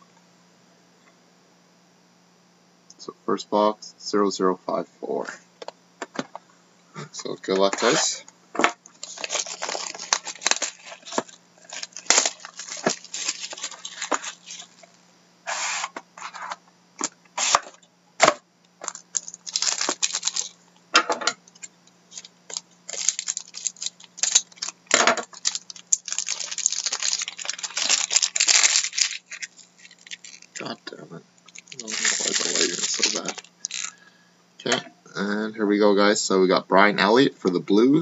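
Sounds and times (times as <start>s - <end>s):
faint low hum: 0.0s - 38.0s
plastic wrapper crinkling and tearing: 8.8s - 15.0s, 17.4s - 17.7s, 18.8s - 20.6s, 21.5s - 30.8s, 31.4s - 34.0s
cardboard and cards handled: 8.9s - 14.8s.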